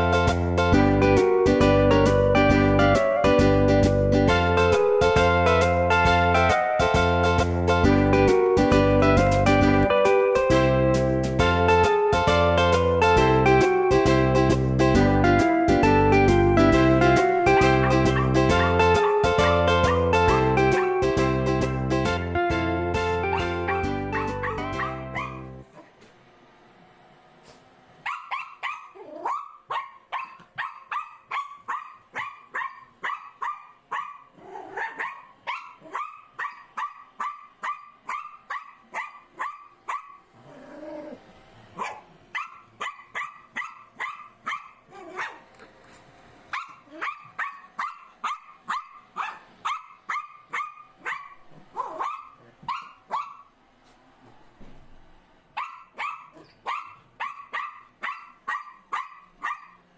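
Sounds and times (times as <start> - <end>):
small dog barking rapidly: 24.2 - 25.5, 28.0 - 40.2, 41.8 - 45.4, 46.5 - 53.5, 55.6 - 59.8.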